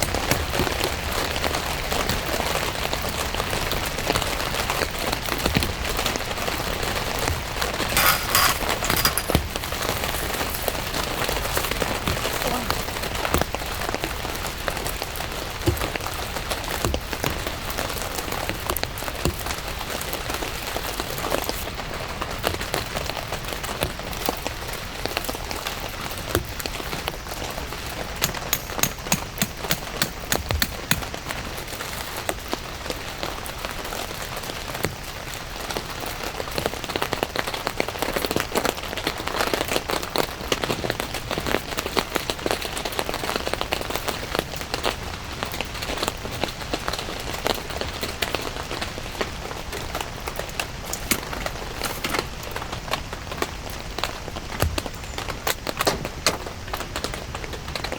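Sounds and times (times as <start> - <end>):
steady rain falling: 0.0 - 7.5, 10.1 - 28.2.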